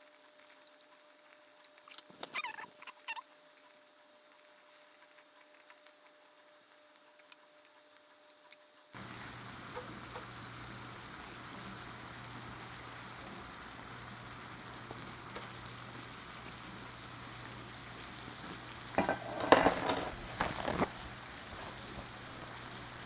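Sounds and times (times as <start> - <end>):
meat sizzling in a frying pan: 8.2 - 23.0
utensil scraping a pan: 18.9 - 22.1.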